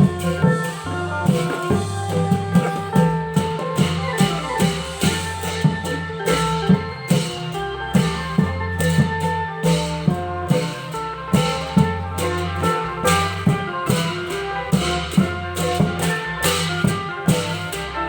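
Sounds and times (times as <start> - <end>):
long drum strokes: 0.0 - 18.0.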